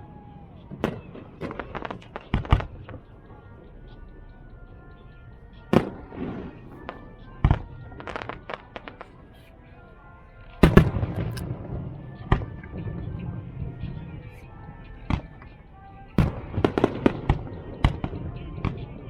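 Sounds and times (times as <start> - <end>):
fireworks bangs: 0.0 - 3.6, 5.7 - 9.5, 10.6 - 14.4, 15.1 - 19.0
fireworks crackling: 0.0 - 9.9, 10.6 - 19.0.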